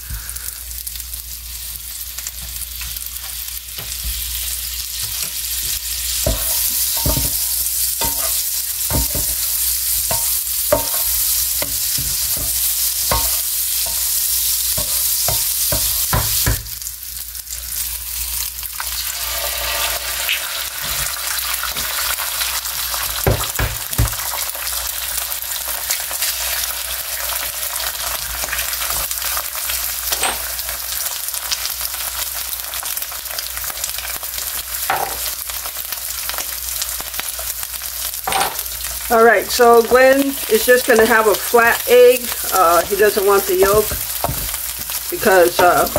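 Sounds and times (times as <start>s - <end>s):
food sizzling in a skillet: 0.0s - 45.9s
spatula scraping and tapping pan: 5.0s - 16.6s, 42.2s - 45.9s.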